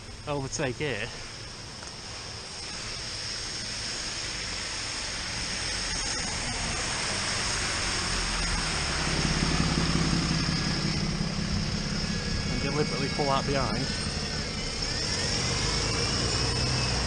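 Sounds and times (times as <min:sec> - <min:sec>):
wind and road noise: 0:00.0 - 0:17.0
vehicle overtaking: 0:06.0 - 0:17.0.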